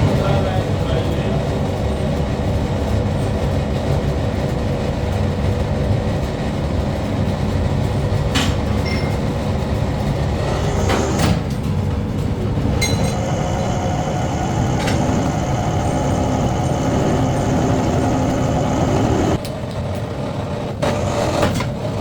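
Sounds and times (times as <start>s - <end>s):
factory machinery low rumble: 0.0s - 22.0s.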